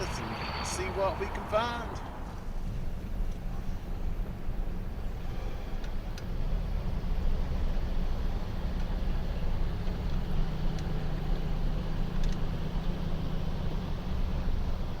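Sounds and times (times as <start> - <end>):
low hum: 0.0 - 4.2
car engine: 0.0 - 15.0
road rumble: 0.0 - 15.0.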